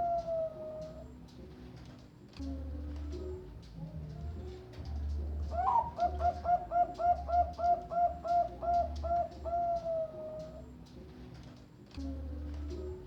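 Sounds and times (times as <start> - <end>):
dove cooing: 0.0 - 1.1, 5.4 - 10.7.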